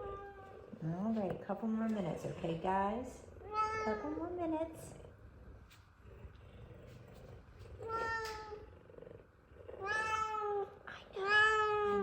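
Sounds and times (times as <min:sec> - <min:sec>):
cat purring: 0:04.7 - 0:12.0.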